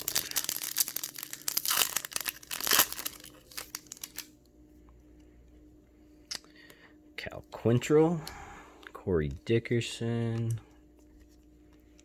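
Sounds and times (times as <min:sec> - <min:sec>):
wrapper tearing and crinkling: 0:00.0 - 0:04.3.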